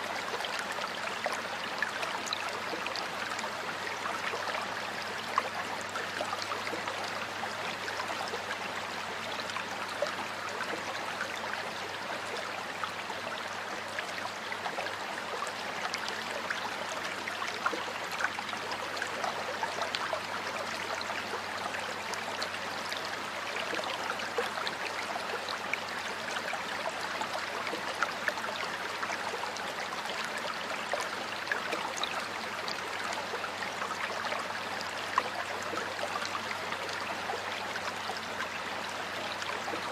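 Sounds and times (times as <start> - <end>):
water flowing in a stream: 0.0 - 39.9.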